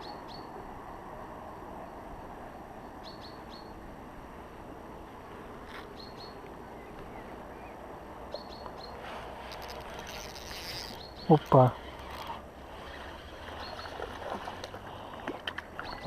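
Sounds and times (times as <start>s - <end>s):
outdoor background hiss: 0.0s - 16.0s
small bird chirping: 3.0s - 3.7s, 6.0s - 11.7s.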